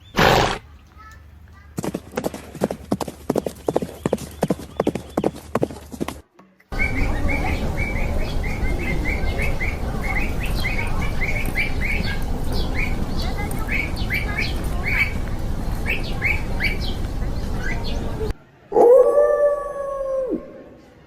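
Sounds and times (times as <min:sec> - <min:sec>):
small birds chirping: 0:00.0 - 0:18.3
horse hooves clip-clopping: 0:00.2 - 0:18.3
steady noisy background: 0:04.4 - 0:18.7.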